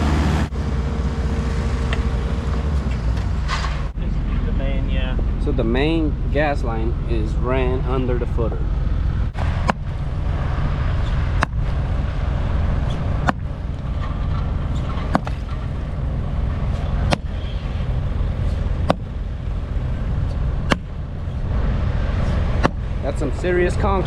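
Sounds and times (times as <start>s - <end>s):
heavy diesel machinery running: 0.0s - 24.0s.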